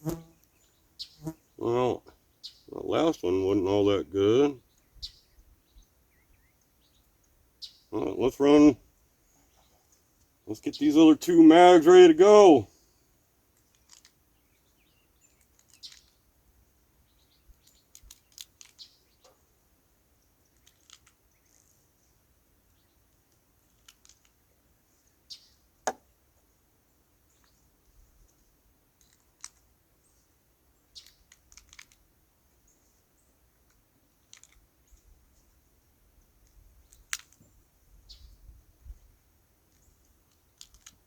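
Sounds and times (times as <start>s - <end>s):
cartridges clicking into magazines: 17.7s - 18.9s, 20.6s - 21.6s, 23.7s - 24.4s, 31.0s - 32.0s, 33.7s - 34.6s, 36.9s - 37.4s, 39.7s - 41.0s.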